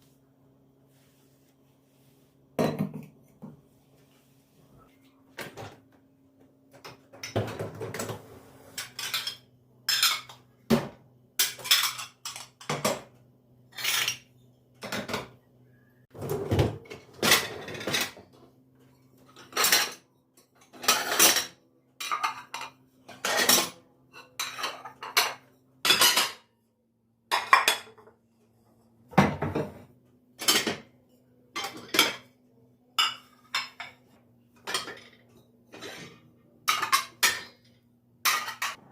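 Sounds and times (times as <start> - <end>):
dishes and cutlery clinking: 8.8 - 10.5, 11.4 - 13.1, 19.1 - 26.5, 27.3 - 28.2, 29.2 - 32.4, 33.0 - 38.9.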